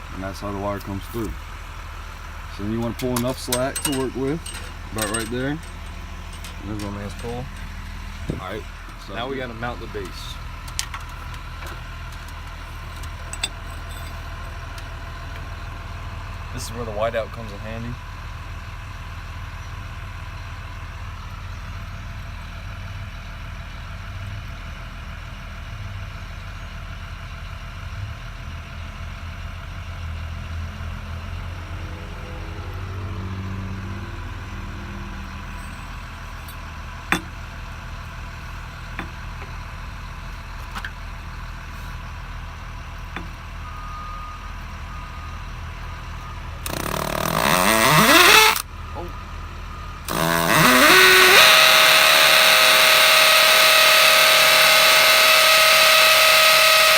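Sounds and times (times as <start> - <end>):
engine idling: 0.0 - 31.7, 34.0 - 56.9
loud motor winding up: 46.6 - 48.7, 50.0 - 56.9
sharp clicks: 46.6 - 48.7, 50.1 - 56.9.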